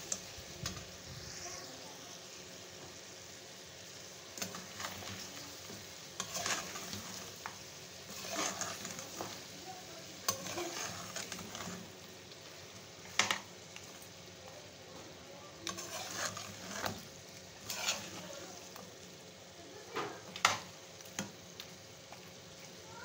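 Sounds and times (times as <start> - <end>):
meat sizzling in a pan: 0.0 - 23.0
metal spoon scraping pan: 6.2 - 7.2, 8.1 - 9.4, 10.2 - 11.9, 15.6 - 18.4.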